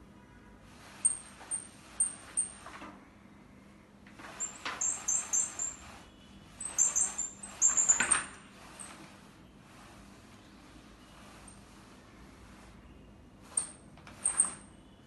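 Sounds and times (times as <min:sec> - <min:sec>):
small bird chirping: 0:04.4 - 0:06.0, 0:06.6 - 0:08.2.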